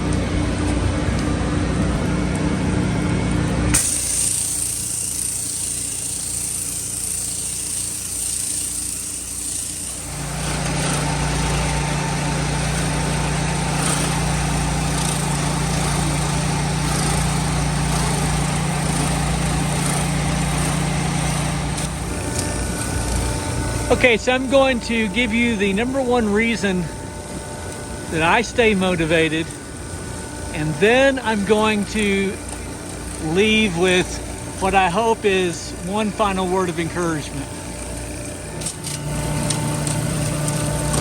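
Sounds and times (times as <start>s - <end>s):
pressure washer engine running: 0.0s - 41.0s
water spraying hiss: 3.8s - 23.9s.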